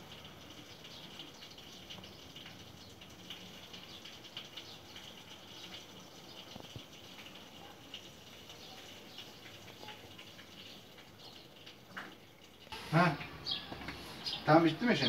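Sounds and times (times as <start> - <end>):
liquid crackling and trickling: 0.0 - 15.0
steady hiss: 12.7 - 15.0.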